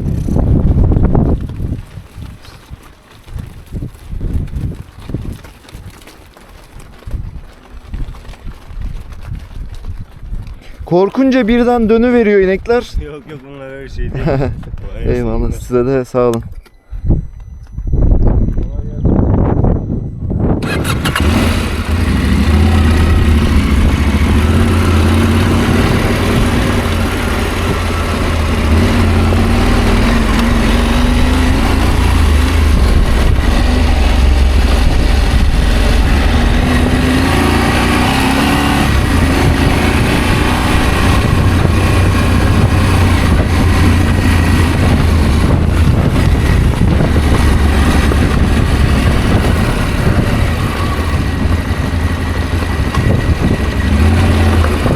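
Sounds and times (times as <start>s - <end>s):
motorcycle engine running: 0.0s - 5.8s, 20.6s - 54.9s
road noise: 0.0s - 16.5s, 20.6s - 54.9s
wind noise: 0.0s - 54.9s.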